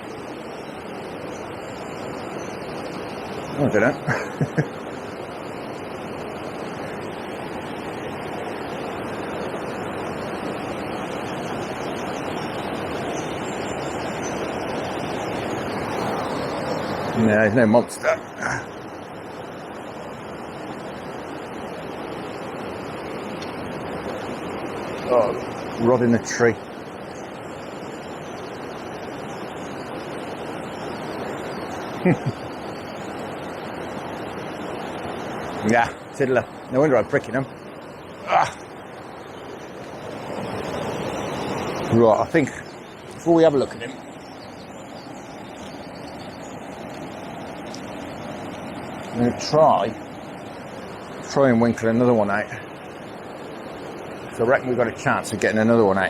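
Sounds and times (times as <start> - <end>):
flowing water rushing: 0.0 - 56.0
grunt-like voice: 38.2 - 38.6.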